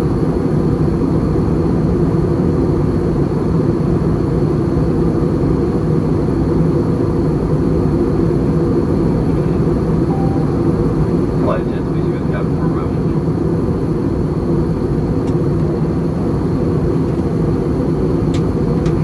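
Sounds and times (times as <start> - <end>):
aircraft cabin engine rumble: 0.0 - 19.0
faint high-pitched tones: 10.0 - 11.1.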